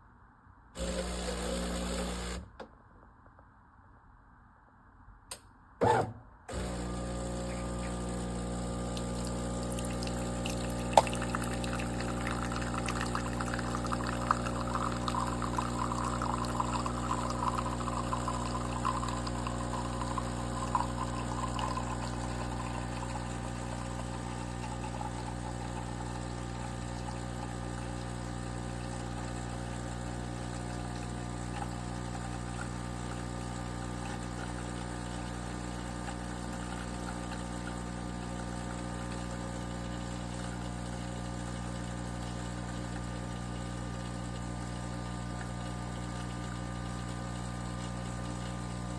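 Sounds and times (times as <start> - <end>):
espresso machine pump humming: 0.8 - 2.5, 6.5 - 48.9
liquid pouring into cup: 7.2 - 33.2.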